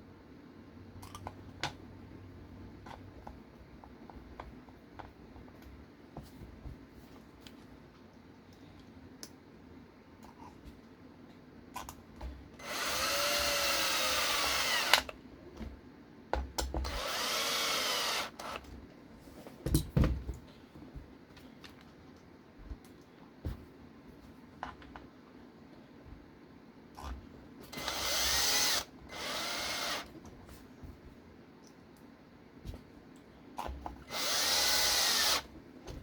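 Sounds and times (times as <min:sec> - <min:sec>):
cordless power driver running: 0:12.6 - 0:15.1, 0:16.8 - 0:18.7, 0:27.7 - 0:30.1, 0:34.0 - 0:35.5.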